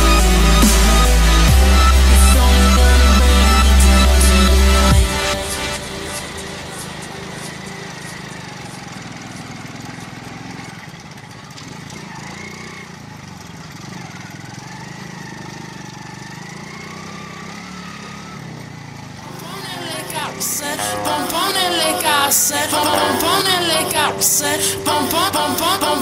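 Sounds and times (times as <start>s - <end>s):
motorcycle engine running: 6.6s - 19.2s.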